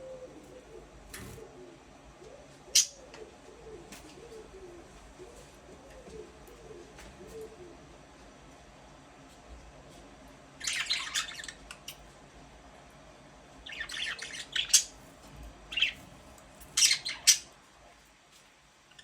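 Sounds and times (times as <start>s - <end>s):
budgerigars chirping and squawking: 10.6s - 11.9s, 13.7s - 17.5s.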